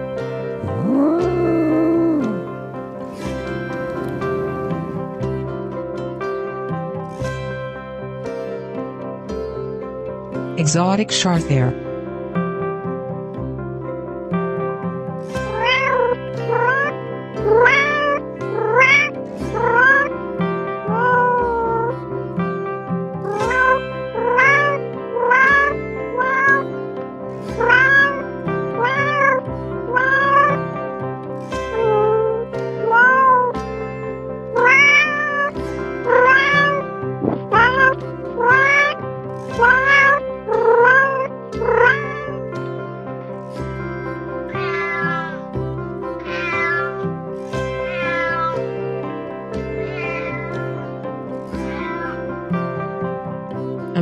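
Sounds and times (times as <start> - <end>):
background music: 0.0 - 54.0
cat meowing: 0.6 - 2.6, 3.4 - 5.2, 15.5 - 20.1, 20.9 - 21.9, 23.3 - 26.6, 27.6 - 30.7, 31.7 - 33.5, 34.6 - 39.0, 39.6 - 42.4, 44.0 - 45.5, 46.2 - 47.0, 47.7 - 48.8, 49.5 - 50.8, 51.5 - 52.8.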